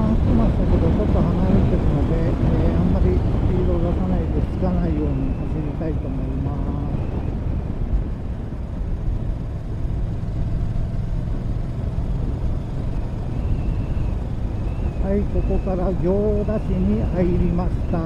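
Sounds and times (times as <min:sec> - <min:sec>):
motorcycle engine rumble: 0:00.0 - 0:18.0
road noise: 0:00.0 - 0:18.0.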